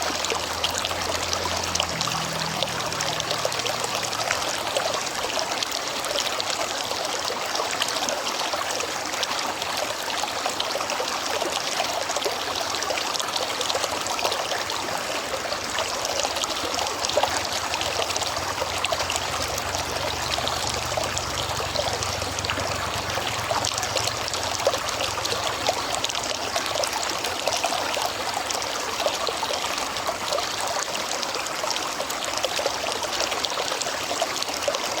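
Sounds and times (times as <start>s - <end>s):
river water flowing: 0.0s - 35.0s.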